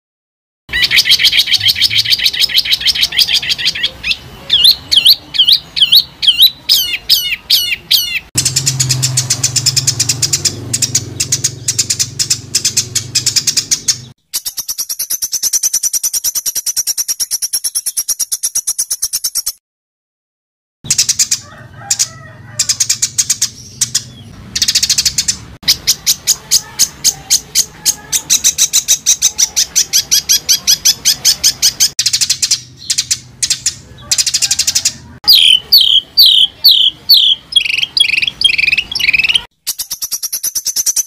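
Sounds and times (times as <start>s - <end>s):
songbird rattling trills: 8.0s - 19.6s, 37.1s - 41.0s.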